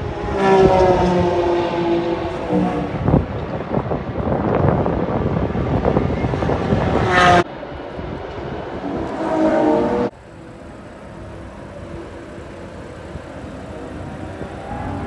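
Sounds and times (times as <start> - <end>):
car engine accelerating: 8.8 - 15.0.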